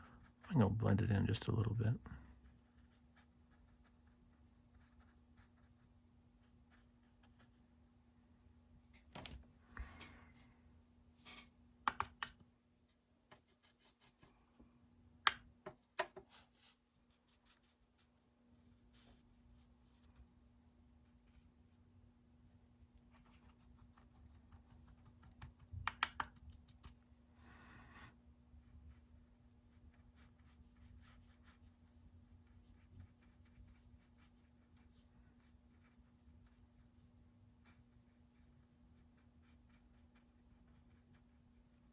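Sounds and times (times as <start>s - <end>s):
faint steady hum: 0.0s - 41.9s
sharp clicks and taps: 11.8s - 12.4s, 25.3s - 26.9s
brush scratching on paper: 13.3s - 14.3s, 16.3s - 18.1s, 22.5s - 25.7s, 28.6s - 41.9s.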